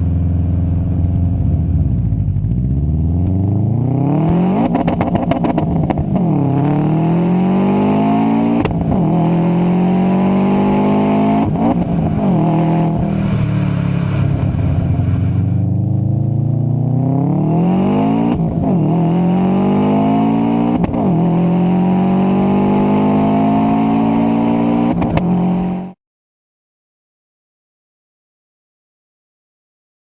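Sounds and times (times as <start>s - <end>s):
exhaust crackle: 0.0s - 21.3s
car engine accelerating: 0.0s - 26.0s.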